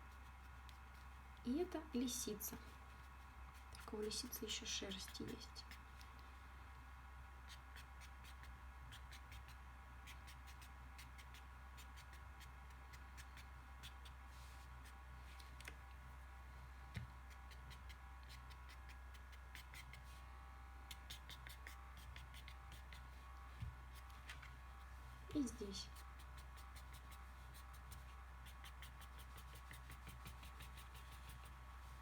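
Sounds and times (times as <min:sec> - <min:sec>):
pencil strokes on paper: 0:00.0 - 0:05.9, 0:21.0 - 0:23.2, 0:25.3 - 0:32.0
low electrical hum: 0:00.0 - 0:32.0.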